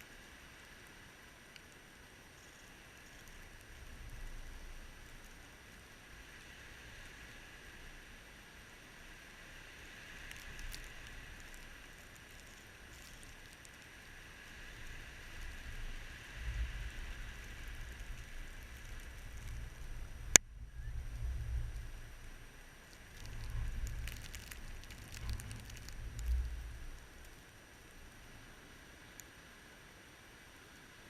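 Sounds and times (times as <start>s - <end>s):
light ticks: 0.0s - 6.0s, 9.8s - 20.5s, 21.1s - 28.0s, 29.0s - 29.4s
faint hiss: 0.0s - 31.0s
wind gusting against microphone: 14.6s - 27.3s.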